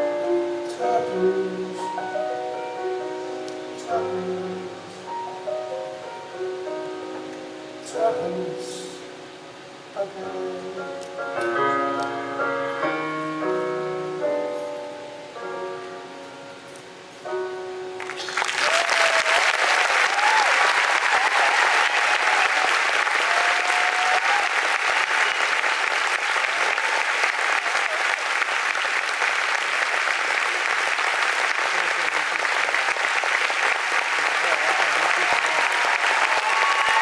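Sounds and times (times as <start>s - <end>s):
soft piano chords: 0.0s - 18.6s
audience applauding: 18.0s - 37.0s.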